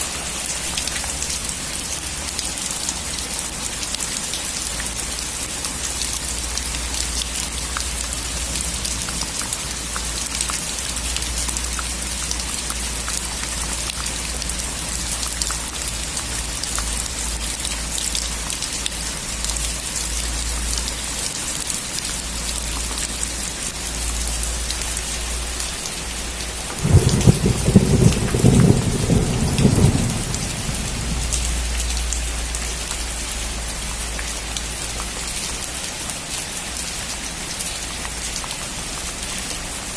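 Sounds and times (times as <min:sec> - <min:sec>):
rain pattering on a surface: 0:00.0 - 0:39.9
thunder rumbling: 0:26.7 - 0:32.2.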